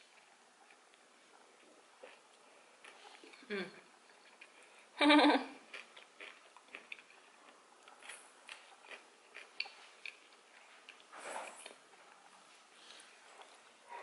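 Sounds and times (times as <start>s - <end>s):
mouth chewing sounds: 5.6s - 12.3s.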